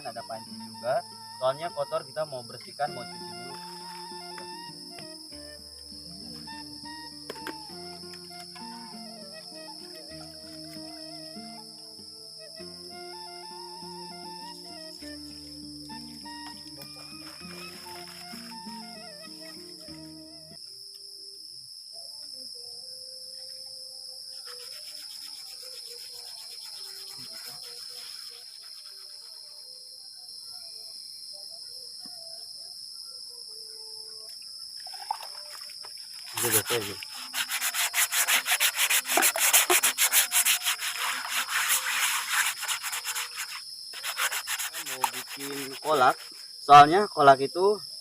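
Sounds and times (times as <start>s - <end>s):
chorus of crickets: 0.0s - 48.0s
cookware being scrubbed: 36.4s - 46.4s.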